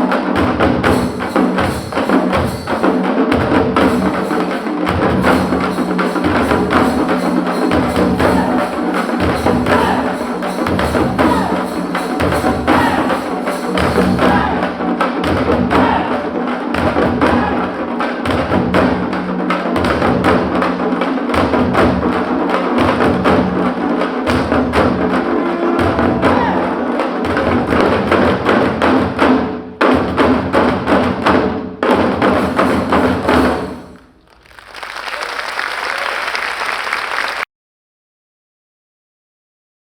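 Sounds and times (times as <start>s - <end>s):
frame drums played with sticks: 0.0s - 34.0s
applause: 33.8s - 37.5s.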